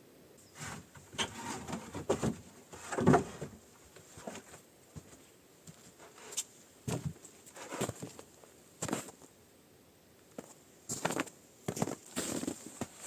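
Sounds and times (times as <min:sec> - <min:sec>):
objects knocking and scraping: 0:00.6 - 0:04.6.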